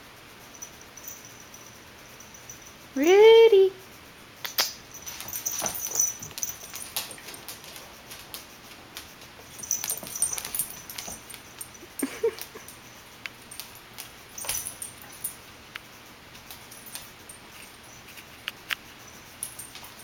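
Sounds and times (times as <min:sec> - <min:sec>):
paws scuffling and clicking: 0:04.6 - 0:20.0.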